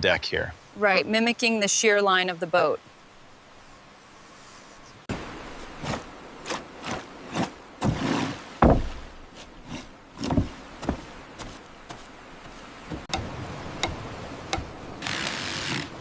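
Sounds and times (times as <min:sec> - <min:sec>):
knocks and thuds on wood: 0:07.8 - 0:09.2, 0:10.2 - 0:12.0.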